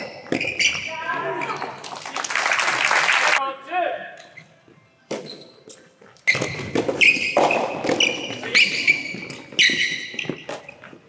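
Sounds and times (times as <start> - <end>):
ball bouncing on court floor: 6.3 - 8.4
rackets hitting ball: 6.3 - 8.6.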